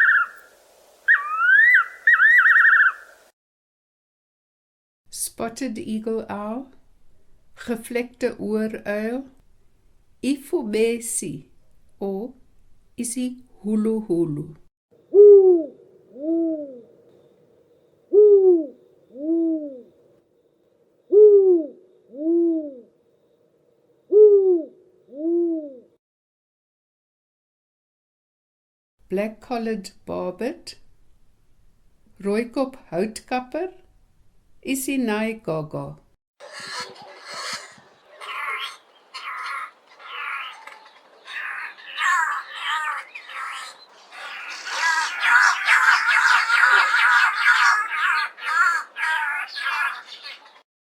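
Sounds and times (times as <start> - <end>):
bird calling: 0.0 - 0.5, 1.1 - 3.3, 36.4 - 50.6
owl hooting: 0.0 - 3.3, 15.1 - 17.3, 18.1 - 20.0, 21.1 - 23.0, 24.1 - 25.9, 36.4 - 50.6.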